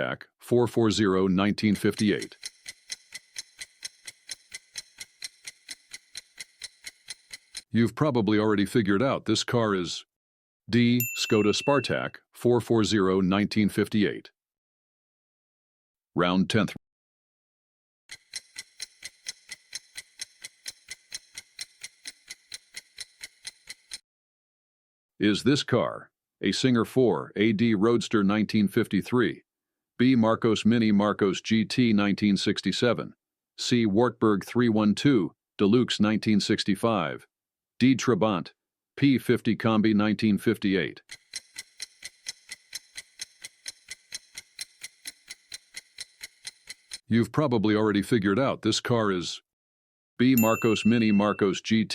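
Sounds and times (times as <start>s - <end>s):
clock ticking: 1.6s - 7.7s, 18.1s - 24.0s, 41.1s - 47.1s, 50.4s - 51.6s.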